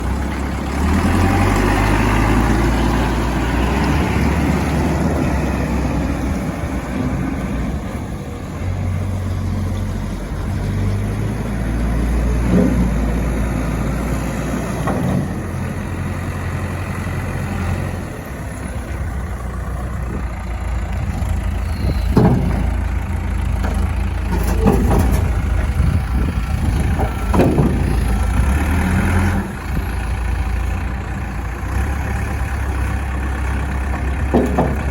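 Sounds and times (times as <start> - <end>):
diesel engine running: 0.0 - 34.9
sharp knocks: 34.3 - 34.9.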